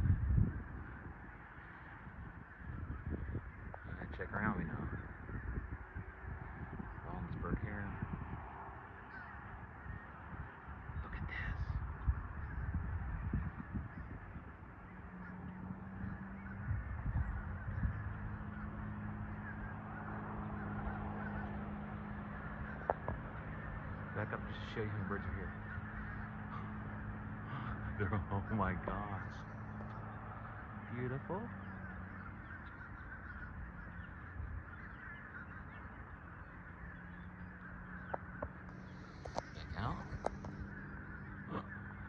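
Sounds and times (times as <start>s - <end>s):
flock of birds calling: 0.0s - 42.0s
steady low hum: 0.0s - 42.0s.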